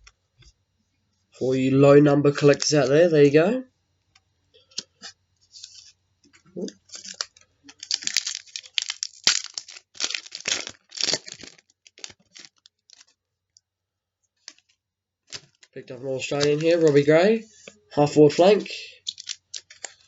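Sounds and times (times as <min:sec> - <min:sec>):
plastic wrapper tearing and crinkling: 0:06.5 - 0:13.2, 0:14.4 - 0:17.2, 0:19.0 - 0:20.0.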